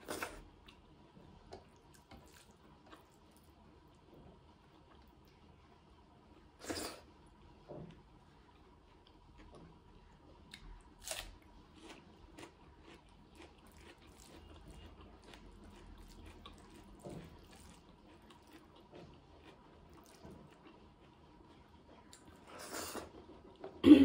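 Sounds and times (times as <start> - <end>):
chewing and crunching: 1.5 - 4.0, 7.9 - 23.8.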